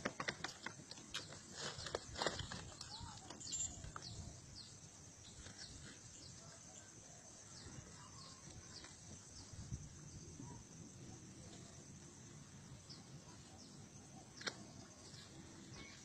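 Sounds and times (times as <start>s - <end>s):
small birds chirping: 0.4s - 6.9s.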